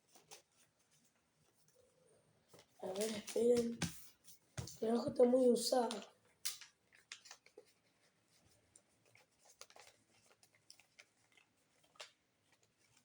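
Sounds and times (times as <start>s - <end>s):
folded paper rustling: 0.0s - 1.6s, 2.5s - 13.0s.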